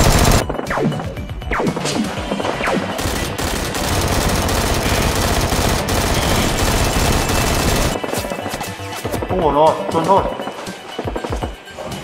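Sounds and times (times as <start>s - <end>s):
rapid automatic gunfire: 0.0s - 0.4s, 2.6s - 8.2s.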